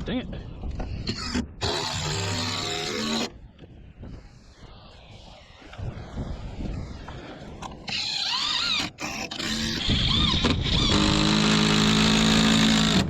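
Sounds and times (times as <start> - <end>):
impact driver whining: 7.9 - 13.0.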